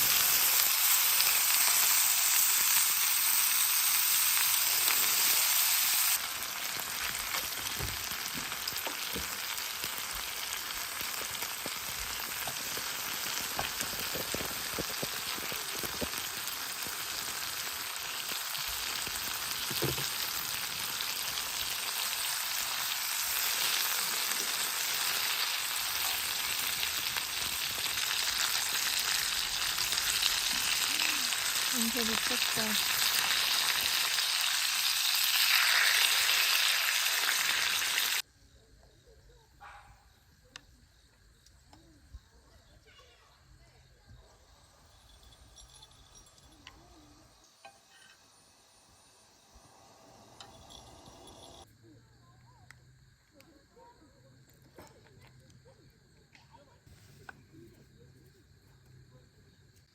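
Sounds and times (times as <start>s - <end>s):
food sizzling in a frying pan: 0.0s - 38.3s, 44.9s - 51.7s.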